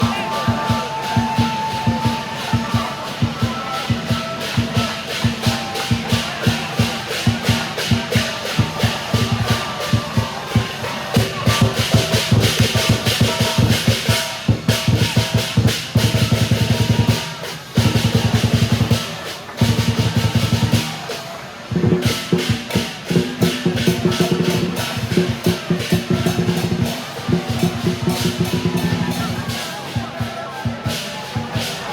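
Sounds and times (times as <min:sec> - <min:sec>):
fast loud drumming: 0:00.0 - 0:31.9.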